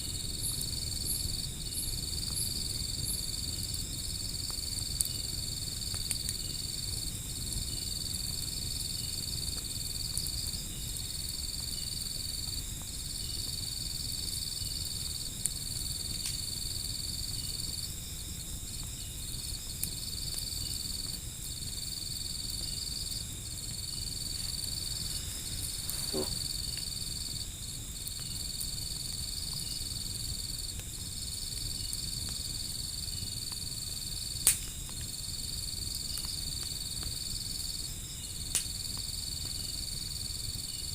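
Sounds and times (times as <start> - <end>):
crickets trilling: 0.0 - 40.9
wood fire crackling: 0.0 - 40.9.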